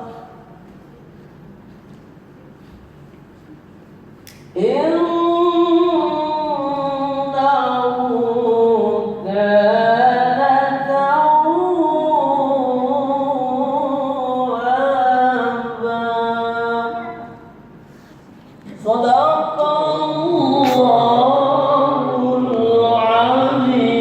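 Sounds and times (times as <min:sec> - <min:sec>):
melodic chanted recitation: 0:04.5 - 0:17.7, 0:18.6 - 0:24.0.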